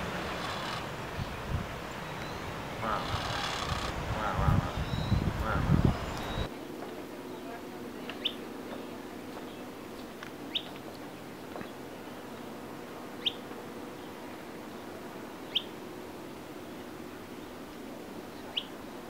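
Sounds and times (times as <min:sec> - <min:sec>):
bird high chirps: 0:04.7 - 0:06.5.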